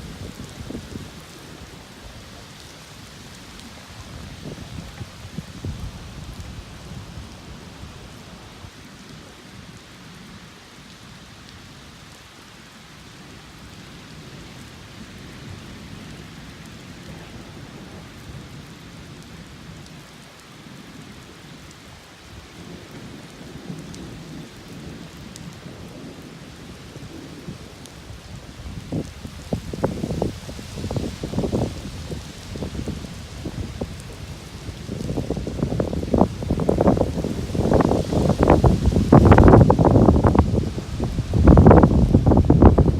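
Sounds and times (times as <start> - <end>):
steady rain: 0.0 - 42.9
low rolling thunder: 22.6 - 42.9.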